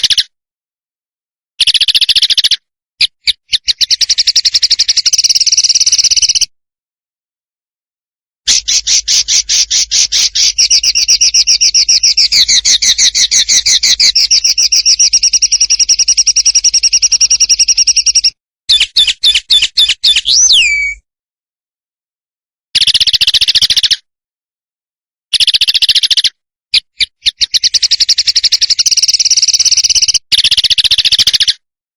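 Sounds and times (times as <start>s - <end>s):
songbird singing: 8.5s - 21.0s, 27.0s - 31.5s.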